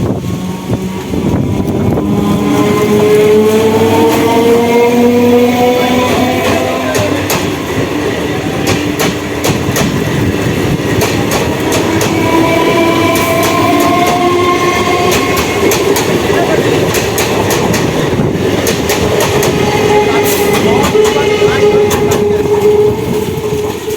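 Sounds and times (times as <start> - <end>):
electric traction motor whine: 0.0 - 7.0
train wheels clicking over rail joints: 0.0 - 23.9.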